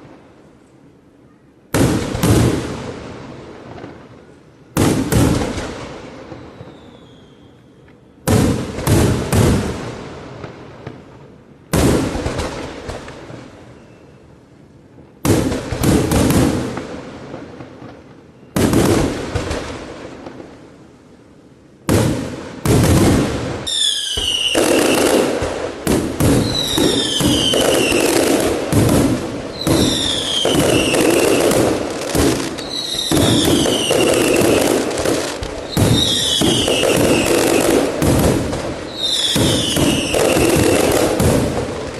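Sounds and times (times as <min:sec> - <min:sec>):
falling firework whistles: 0:06.2 - 0:09.1, 0:13.6 - 0:14.3, 0:22.0 - 0:41.9
fireworks crackling: 0:15.2 - 0:20.8, 0:21.8 - 0:41.9.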